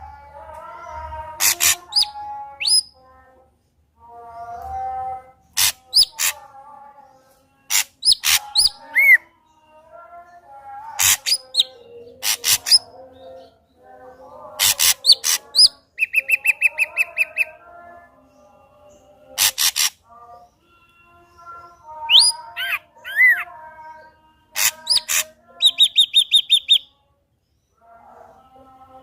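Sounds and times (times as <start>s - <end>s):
rapid bird trill: 1.4s - 2.9s, 5.6s - 6.4s, 7.7s - 9.2s, 19.4s - 20.0s, 24.6s - 26.9s.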